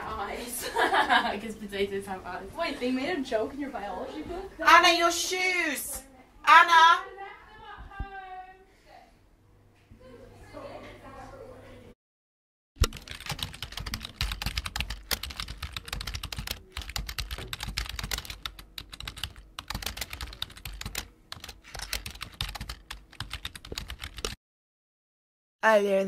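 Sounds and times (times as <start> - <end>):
typing on keyboard: 12.8 - 24.4.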